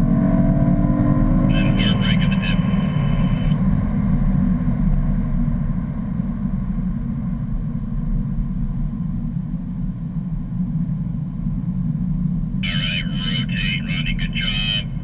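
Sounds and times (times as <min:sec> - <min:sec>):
engine drone inside car: 0:00.0 - 0:15.0.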